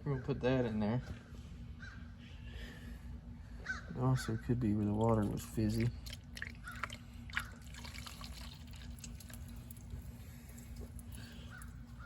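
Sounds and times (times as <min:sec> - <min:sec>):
steady low hum: 0:00.0 - 0:12.0
faint drips and ticks: 0:05.0 - 0:11.8.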